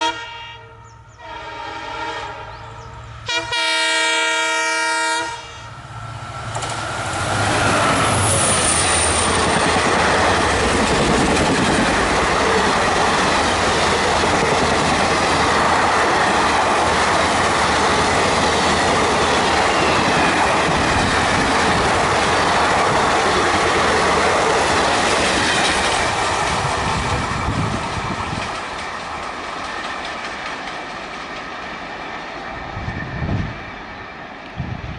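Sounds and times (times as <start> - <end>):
locomotive horn blasts: 0.0 - 5.7
train passing with clattering wheels: 0.9 - 34.9.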